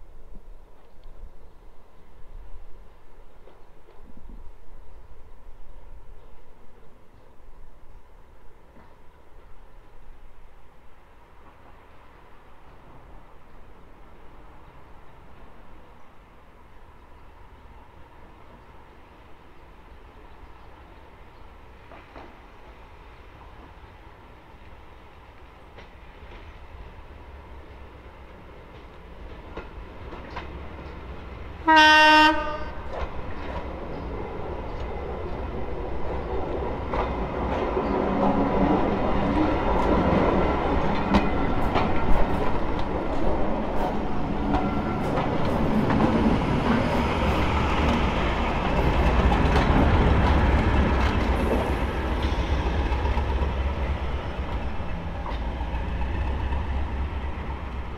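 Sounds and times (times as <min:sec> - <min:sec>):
train wheels clattering over rail joints: 0:28.6 - 0:31.4, 0:32.9 - 0:57.9
train horn blast: 0:31.6 - 0:33.0.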